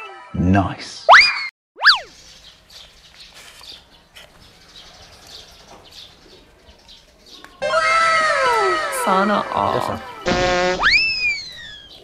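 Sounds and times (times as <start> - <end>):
small birds chirping: 2.0 - 7.6, 8.3 - 12.0.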